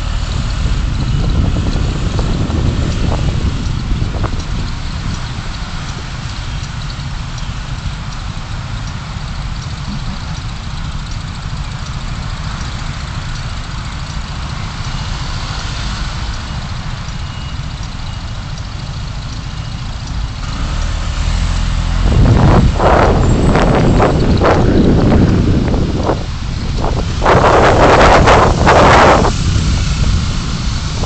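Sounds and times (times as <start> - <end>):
car engine and road noise: 0.0 - 31.0
rough rushing noise: 20.4 - 31.0.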